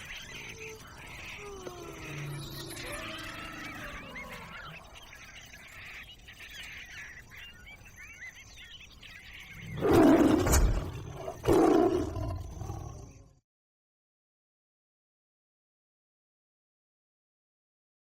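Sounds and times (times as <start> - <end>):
faint bird chirping: 0.0 - 13.4
animal roars: 0.3 - 5.0, 9.5 - 13.4.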